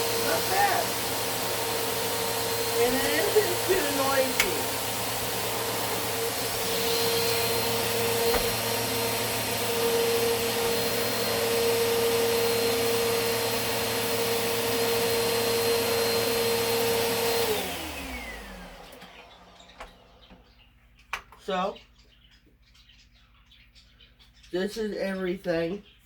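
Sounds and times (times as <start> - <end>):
vacuum cleaner motor whine: 0.0 - 20.4.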